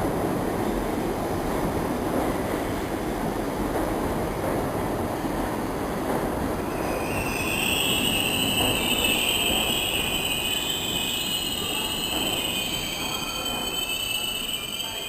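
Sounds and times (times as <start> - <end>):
subway train rumbling: 0.0 - 15.0
metal-on-metal squeal: 6.8 - 15.0.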